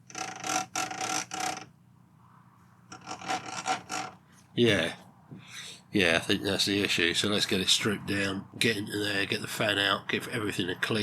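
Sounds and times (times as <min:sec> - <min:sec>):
cooling fan scraping housing: 0:00.0 - 0:05.7.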